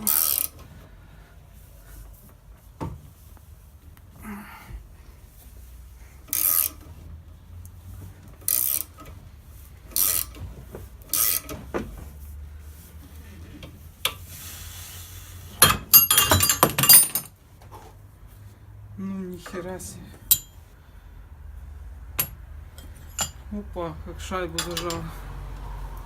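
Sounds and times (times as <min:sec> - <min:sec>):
metallic clinks and clatter: 0:15.9 - 0:17.4, 0:22.2 - 0:23.4.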